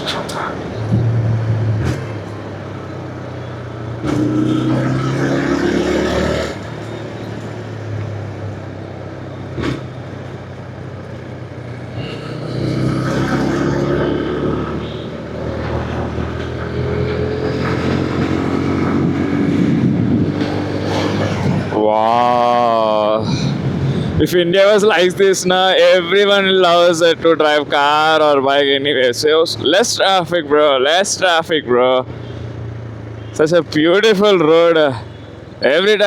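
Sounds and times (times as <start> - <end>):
motorcycle engine accelerating: 0.0 - 22.8
wind and road noise: 0.0 - 36.0.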